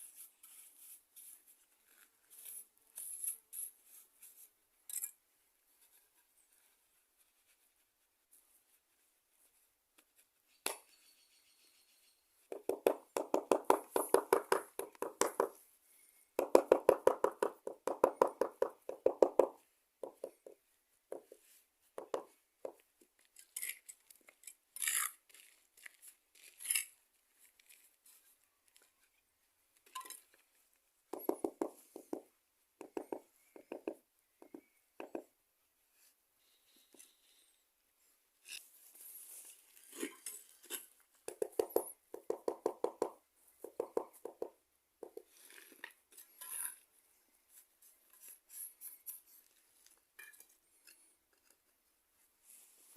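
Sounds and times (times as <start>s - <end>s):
tool tapping and clinking: 31.1s - 32.2s.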